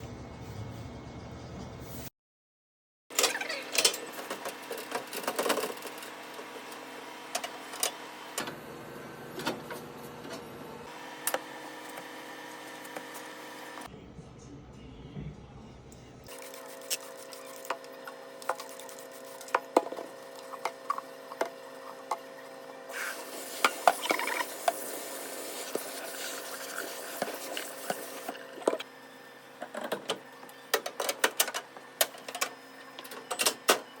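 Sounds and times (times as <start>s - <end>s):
rubbing while cleaning: 18.5s - 19.7s.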